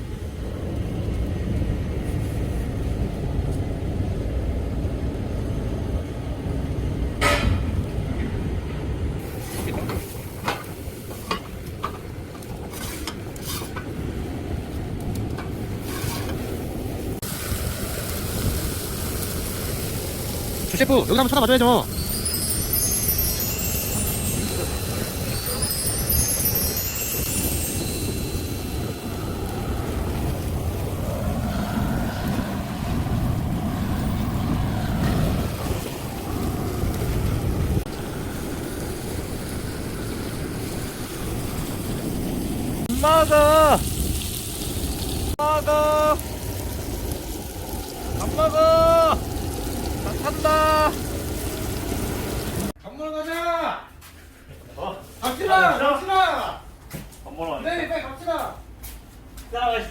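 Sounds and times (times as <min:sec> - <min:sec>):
wind rumbling on microphone: 0:00.0 - 0:21.2, 0:21.8 - 0:52.7
steady hiss: 0:15.7 - 0:32.6
wind buffeting microphone: 0:21.8 - 0:42.9.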